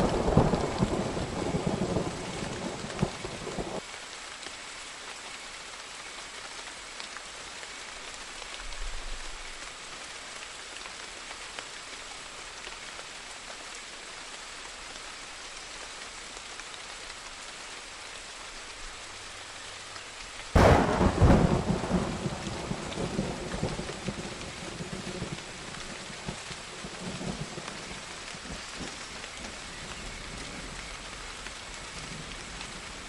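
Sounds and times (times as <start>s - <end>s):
steady rain falling: 0.0s - 33.0s
thunder clap rolling: 20.6s - 25.4s.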